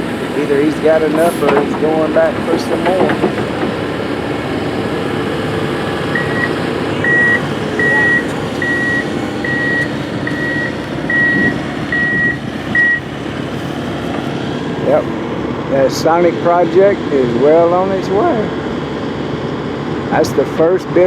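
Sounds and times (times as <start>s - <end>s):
reversing alarm beeping: 0.0s - 13.4s
engine running: 0.0s - 21.0s.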